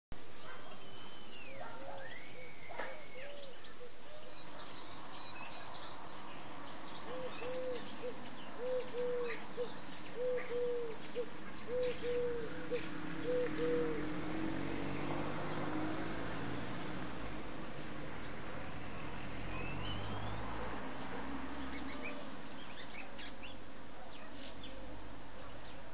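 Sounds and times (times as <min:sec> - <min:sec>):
small birds chirping: 0:00.2 - 0:25.9
low hollow hooting call: 0:07.0 - 0:14.6.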